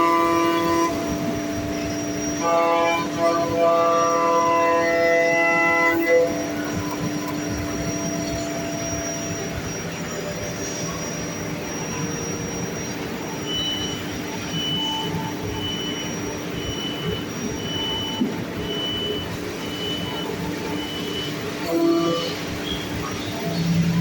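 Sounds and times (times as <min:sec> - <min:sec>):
milling machine running: 0:00.0 - 0:24.0
high beep: 0:10.6 - 0:21.4.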